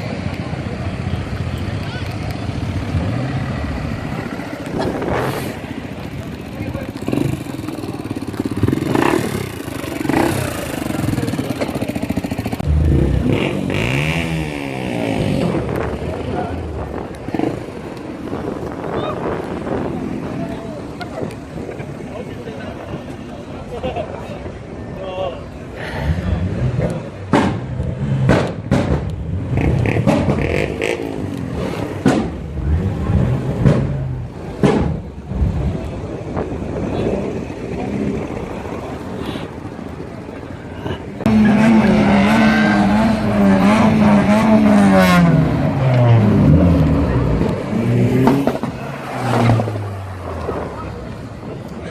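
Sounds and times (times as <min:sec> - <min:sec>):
cars driving past: 0:00.0 - 0:51.9
car engine revving: 0:02.3 - 0:18.7, 0:26.1 - 0:36.0, 0:41.2 - 0:51.6.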